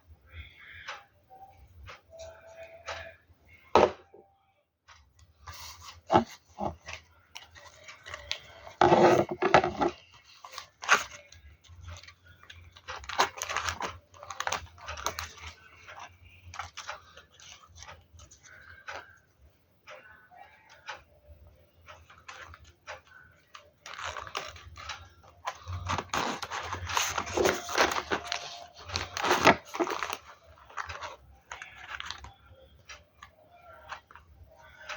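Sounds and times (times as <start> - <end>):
paper crinkling: 5.4 - 19.1, 21.9 - 34.9
paper ripping: 25.9 - 30.2.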